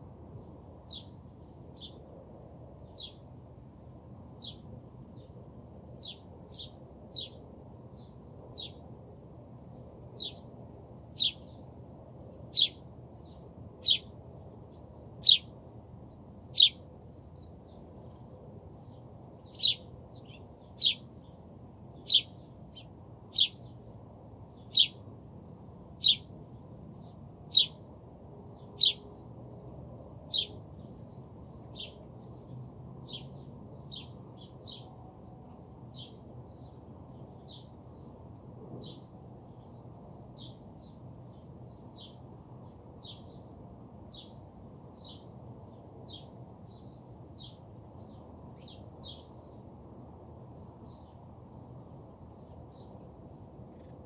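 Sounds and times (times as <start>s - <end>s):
small bird chirping: 0.9s - 2.2s, 2.8s - 3.2s, 6.0s - 7.4s, 8.0s - 8.9s, 9.6s - 18.2s, 18.8s - 21.4s, 22.0s - 23.9s, 24.5s - 26.3s, 27.4s - 27.8s, 28.6s - 35.3s.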